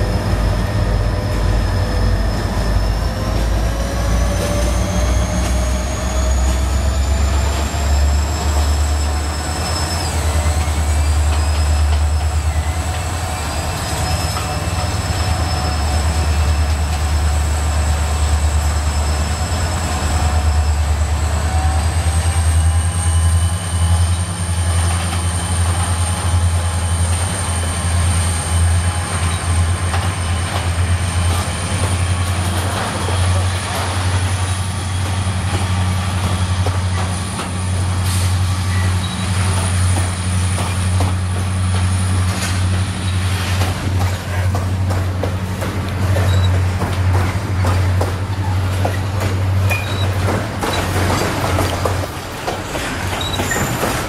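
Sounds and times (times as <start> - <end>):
train wagons rumbling past: 0.0 - 54.0
high-pitched wheel squeal: 5.2 - 17.2.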